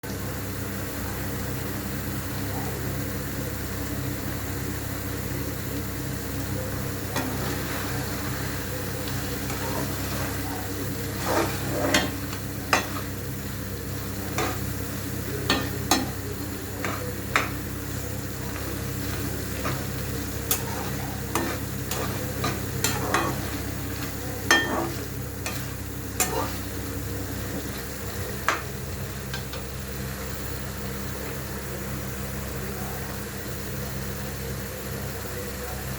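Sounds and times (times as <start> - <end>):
steady low hum: 0.2 - 35.9
food sizzling in a pan: 3.0 - 30.3
spoon clinking against pan: 18.4 - 26.6.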